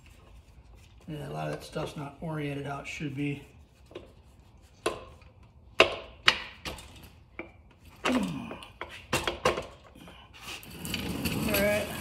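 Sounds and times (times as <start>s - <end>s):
tools knocking and clicking on metal: 4.8s - 9.9s.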